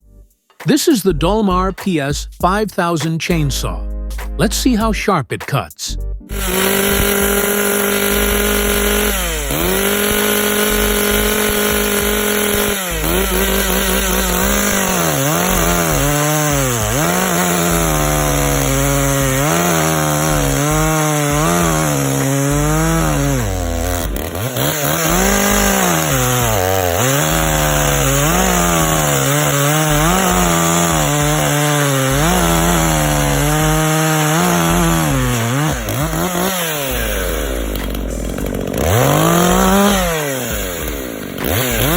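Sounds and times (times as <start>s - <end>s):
chainsaw cutting wood: 6.3s - 41.9s.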